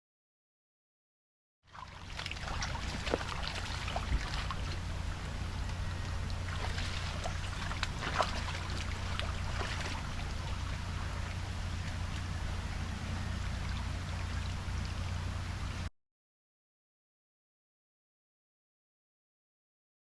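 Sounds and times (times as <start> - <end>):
low engine hum: 1.7 - 15.9
water splashing against car: 1.8 - 12.4.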